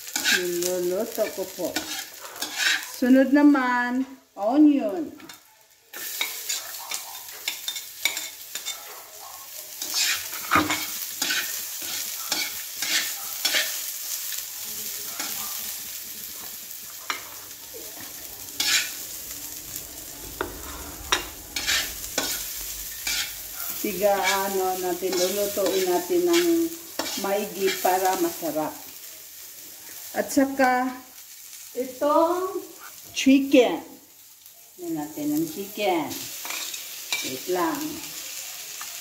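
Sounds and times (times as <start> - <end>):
onion sizzling in hot oil: 0.0 - 39.0
spatula scraping and knocking pan: 1.2 - 3.0, 9.8 - 13.8, 15.2 - 28.3.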